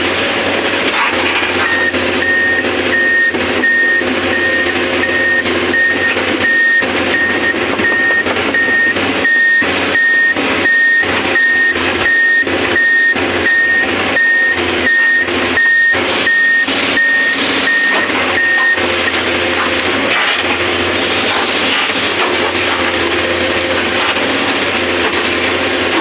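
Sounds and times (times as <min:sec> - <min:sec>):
excavator engine running: 0:00.0 - 0:26.0
alarm beeping: 0:01.6 - 0:19.9.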